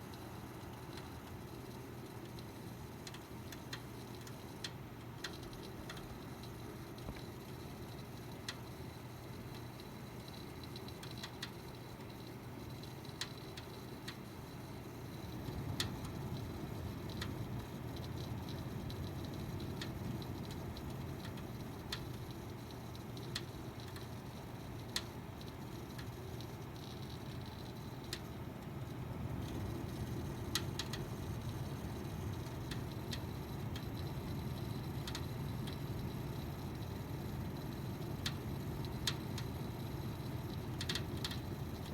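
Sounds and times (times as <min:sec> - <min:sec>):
computer low hum: 0:00.0 - 0:41.9
computer crackling clicks: 0:40.8 - 0:41.9.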